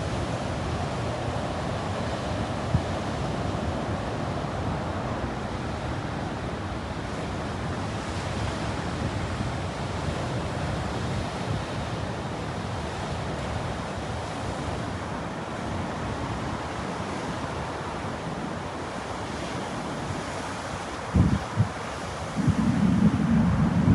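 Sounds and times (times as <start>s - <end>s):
ocean surf breaking: 8.6s - 23.9s
wind buffeting microphone: 19.8s - 23.9s.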